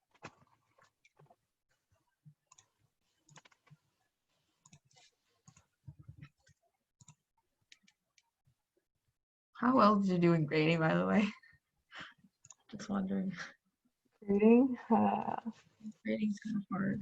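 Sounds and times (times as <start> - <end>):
computer mouse clicks: 3.3 - 3.8, 4.6 - 5.7.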